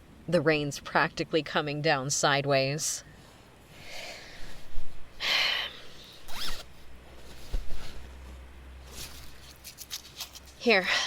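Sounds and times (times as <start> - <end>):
bag zipper pulled open: 6.0 - 8.1, 8.8 - 10.6.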